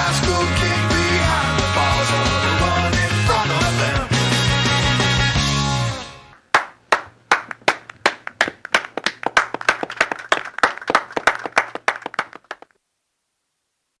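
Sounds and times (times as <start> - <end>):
hand clapping: 6.5 - 12.7.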